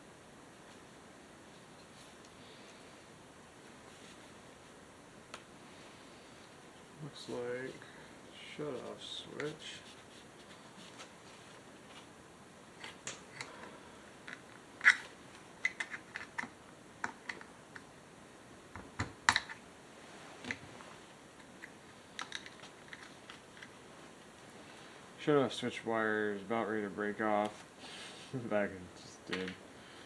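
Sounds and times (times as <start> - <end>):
small tools clicking and tapping: 14.2 - 17.9, 21.4 - 23.7.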